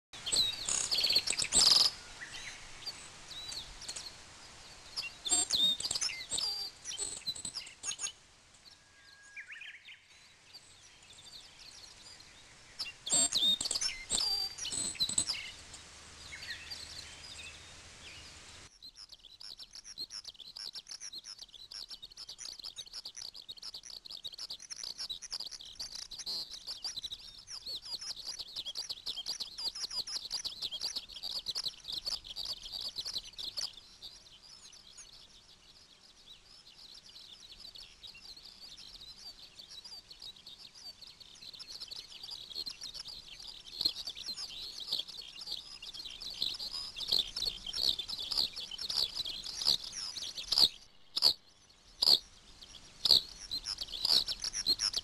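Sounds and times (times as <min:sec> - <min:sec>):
rapid high chirping: 0:00.2 - 0:02.0, 0:04.9 - 0:08.1, 0:12.8 - 0:15.6, 0:18.8 - 0:35.2, 0:37.4 - 0:55.0
birds chirping and calling: 0:00.2 - 0:04.2, 0:04.8 - 0:08.2, 0:10.3 - 0:17.3, 0:19.0 - 0:55.0.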